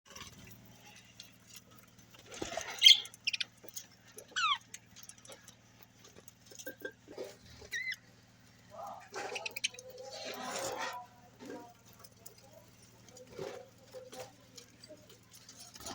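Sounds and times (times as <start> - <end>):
budgerigars chirping and chattering: 2.6 - 3.5, 4.3 - 4.6, 7.6 - 8.0, 9.1 - 10.3.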